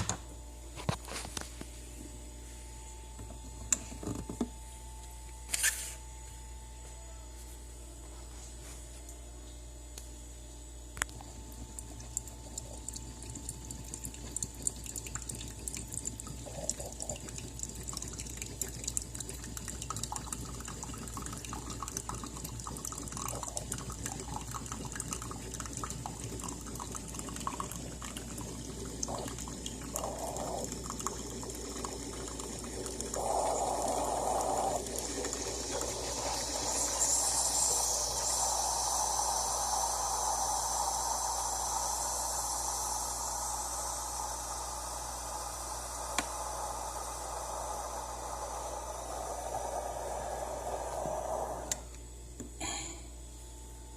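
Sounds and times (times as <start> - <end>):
espresso machine running: 10.5 - 52.0
liquid dripping into cup: 11.0 - 40.7
high hiss: 33.1 - 52.0.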